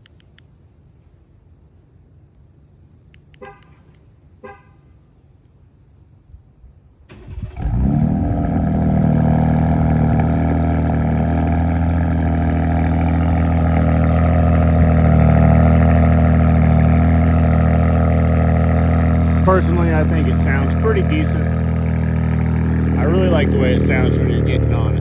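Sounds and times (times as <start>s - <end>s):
engine cranking: 7.1s - 25.0s
engine idling loudly: 7.4s - 25.0s.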